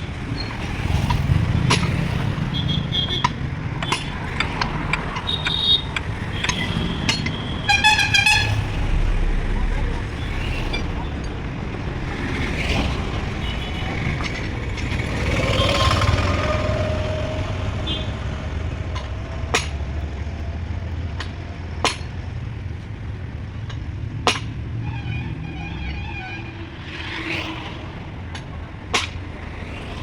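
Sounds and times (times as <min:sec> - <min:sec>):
brief rising tone: 0:08.4 - 0:11.6.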